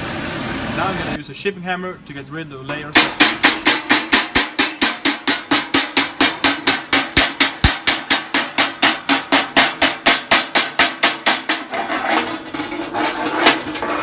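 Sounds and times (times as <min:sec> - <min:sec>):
chipping hammer striking steel: 0:02.7 - 0:12.8.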